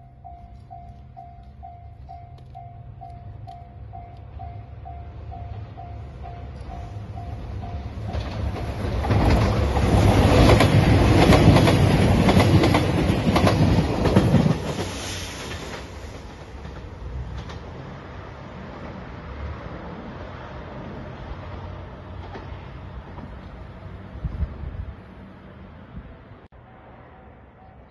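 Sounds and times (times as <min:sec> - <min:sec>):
diesel train passing: 0:00.0 - 0:27.9
wheels clacking over rail joints: 0:05.4 - 0:19.6.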